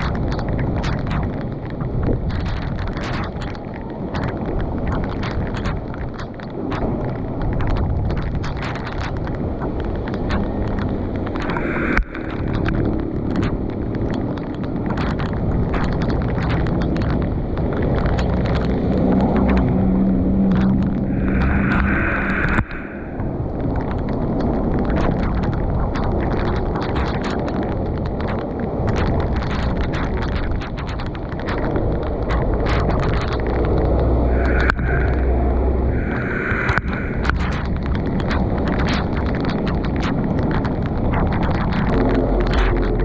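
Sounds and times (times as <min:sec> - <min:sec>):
heavy rain: 0:00.0 - 0:43.0
storm water rushing: 0:00.0 - 0:43.0
wind buffeting microphone: 0:00.0 - 0:43.0
sharp taps and knocks: 0:36.3 - 0:43.0.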